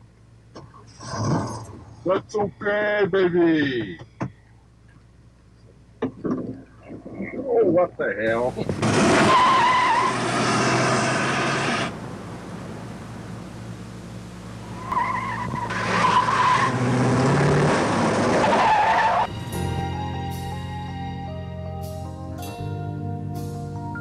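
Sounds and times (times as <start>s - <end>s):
tyres squealing: 8.3s - 19.3s
low engine hum: 8.3s - 24.0s.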